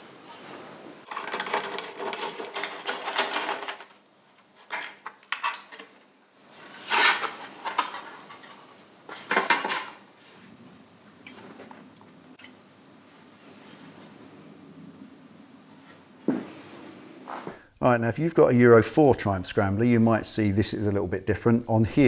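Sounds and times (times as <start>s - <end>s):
metal clattering and rattling: 1.1s - 4.0s.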